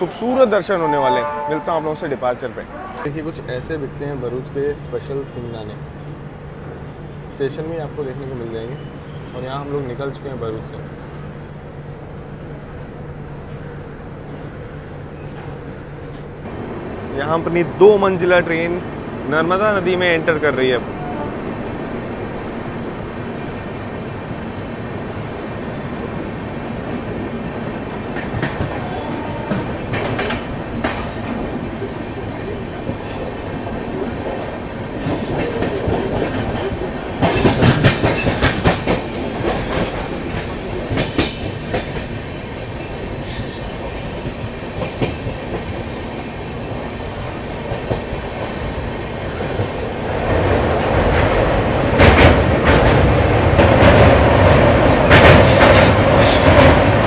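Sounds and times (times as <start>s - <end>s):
train rumbling on steel bridge: 0.0s - 57.0s
train wheels clacking over joints: 34.9s - 42.2s, 51.0s - 57.0s.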